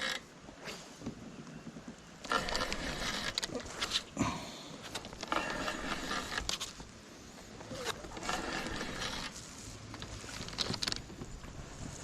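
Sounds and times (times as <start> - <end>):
fishing reel whirring: 0.0 - 0.3, 2.2 - 4.0, 5.2 - 6.7, 8.0 - 9.4.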